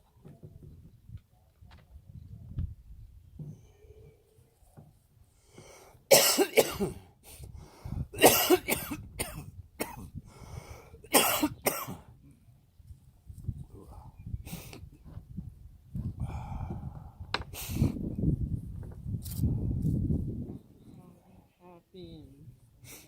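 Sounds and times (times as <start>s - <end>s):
person coughing: 6.1s - 7.0s, 8.2s - 10.0s, 11.1s - 12.0s.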